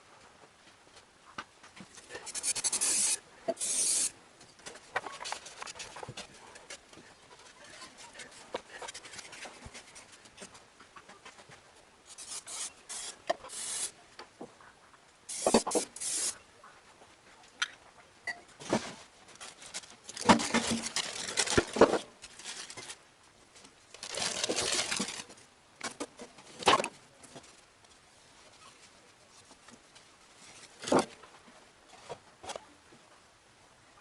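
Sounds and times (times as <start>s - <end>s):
aerosol spray can hissing: 2.4s - 4.1s, 12.2s - 13.9s, 15.3s - 16.4s.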